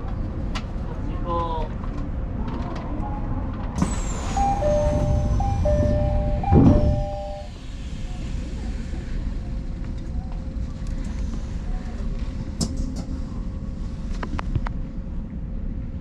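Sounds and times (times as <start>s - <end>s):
electric train running on rails: 3.6s - 10.4s
high falling whine: 3.8s - 7.5s
alternating warning tones: 3.8s - 7.6s.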